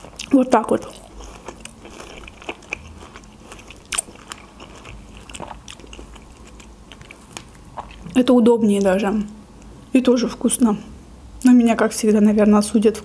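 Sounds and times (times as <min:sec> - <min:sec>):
chewing strawberry wet mouth clicks: 0:00.9 - 0:08.1.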